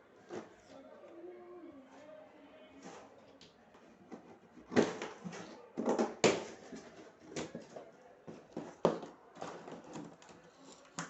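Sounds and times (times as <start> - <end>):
hard objects knocking and clattering: 4.1 - 10.3.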